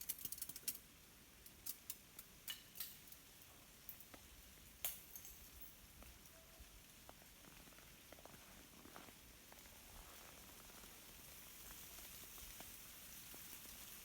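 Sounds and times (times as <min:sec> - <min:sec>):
icy branches cracking and clinking: 0:00.0 - 0:06.3.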